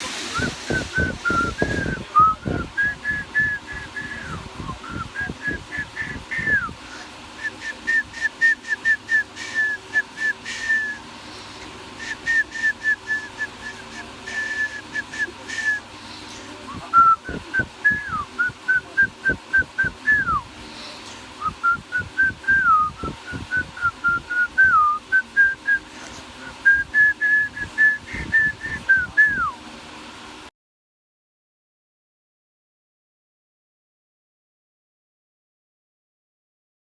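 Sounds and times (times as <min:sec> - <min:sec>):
person whistling: 0:00.3 - 0:11.0, 0:12.0 - 0:15.8, 0:16.7 - 0:20.4, 0:21.4 - 0:29.6.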